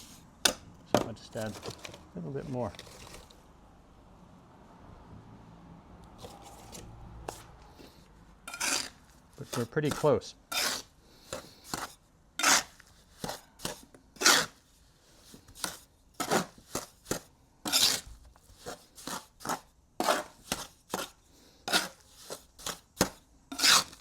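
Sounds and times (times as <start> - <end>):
trowel scraping wet mortar: 8.5 - 24.0.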